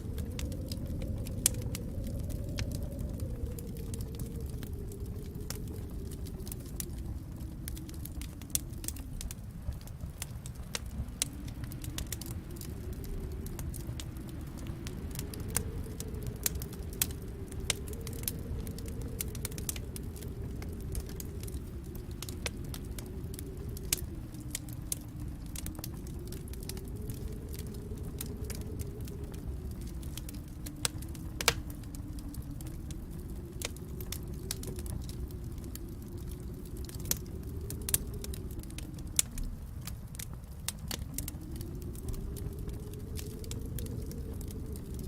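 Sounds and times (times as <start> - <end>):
wood fire crackling and popping: 0.0 - 45.0.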